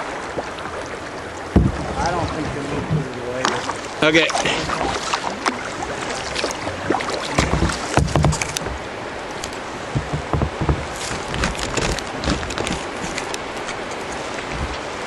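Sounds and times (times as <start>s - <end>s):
paddle splashing in water: 0.0s - 15.0s
rushing water: 0.0s - 15.0s
low thumps: 1.5s - 3.3s, 6.8s - 9.0s, 9.8s - 12.8s.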